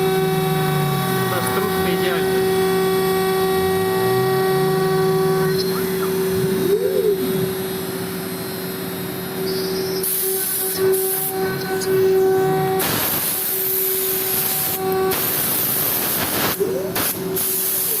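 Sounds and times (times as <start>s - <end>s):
cnc router spindle whine: 0.0s - 18.0s
cutting hiss: 10.0s - 18.0s.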